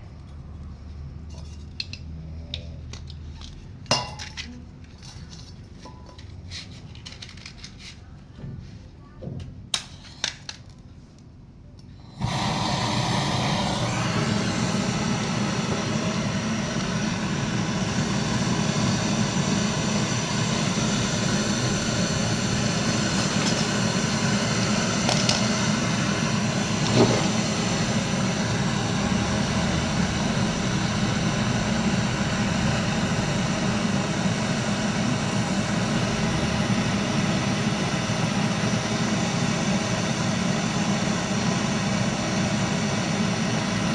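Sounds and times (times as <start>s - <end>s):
electric motor humming: 12.1s - 43.9s.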